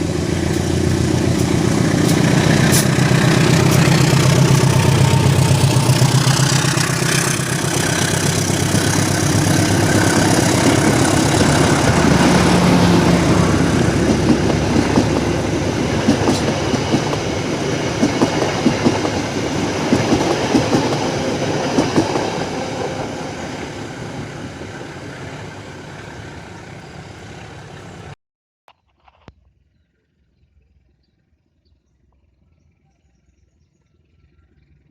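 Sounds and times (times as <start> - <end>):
locomotive engine drone: 0.0 - 28.2
train wheels clattering over rail joints: 0.5 - 12.6.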